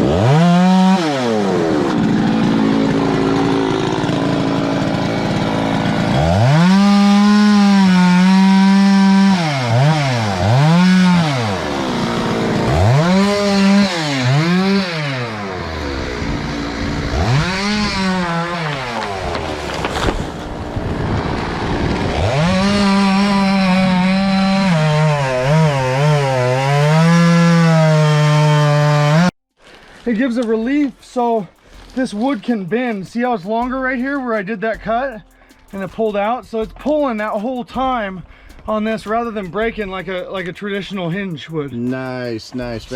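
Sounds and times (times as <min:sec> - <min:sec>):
chainsaw cutting wood: 0:00.0 - 0:30.5.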